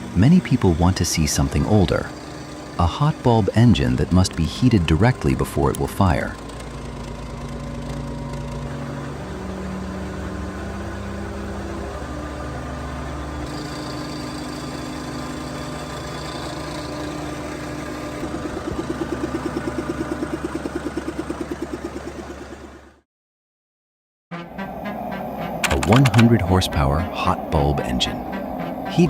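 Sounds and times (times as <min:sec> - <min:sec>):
large engine running: 0:00.0 - 0:23.0, 0:24.4 - 0:29.0
rapid pulsing beat: 0:24.6 - 0:29.0.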